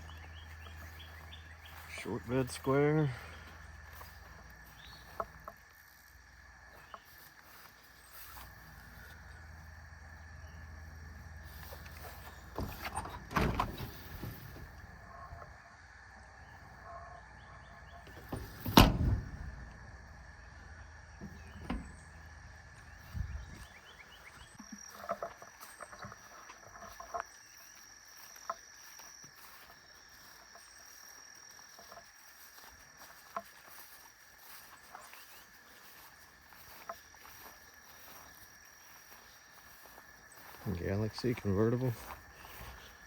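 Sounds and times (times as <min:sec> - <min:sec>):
insects droning: 0:00.0 - 0:43.0
knocks and thumps: 0:18.1 - 0:19.9.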